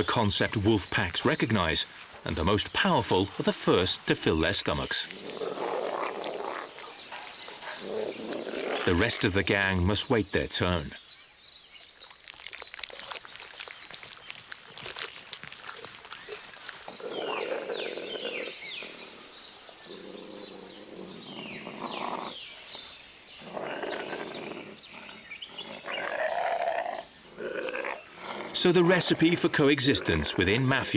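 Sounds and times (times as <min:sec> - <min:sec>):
wolves snarling and growling: 0:05.1 - 0:09.8, 0:15.5 - 0:30.6.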